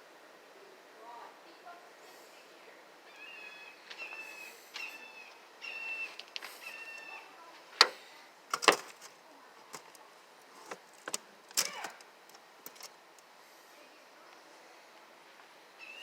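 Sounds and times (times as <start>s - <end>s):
sharp clicks and knocks: 7.8s - 9.1s, 10.6s - 13.0s.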